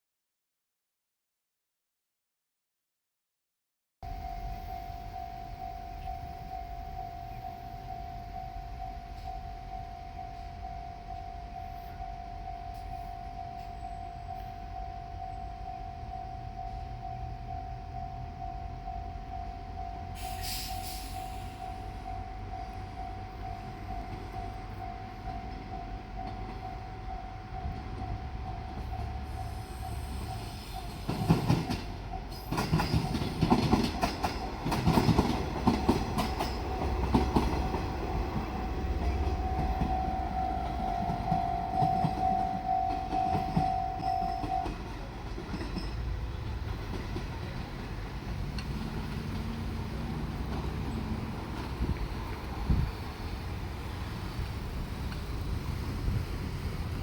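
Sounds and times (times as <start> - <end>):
level-crossing alarm ringing: 4.0 - 46.2
train rumble: 4.0 - 57.0
train wheels clacking over rail joints: 30.2 - 52.9.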